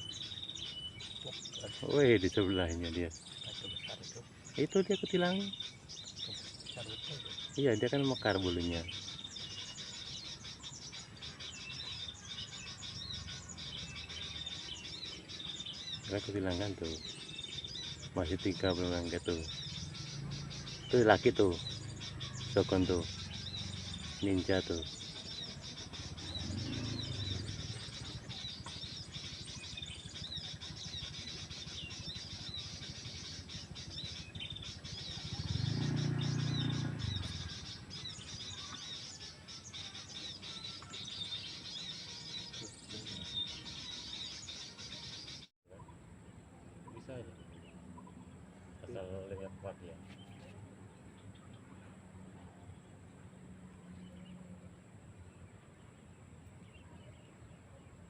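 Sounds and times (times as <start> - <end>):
low outdoor hum: 0.0 - 58.0
small birds chirping: 0.0 - 58.0.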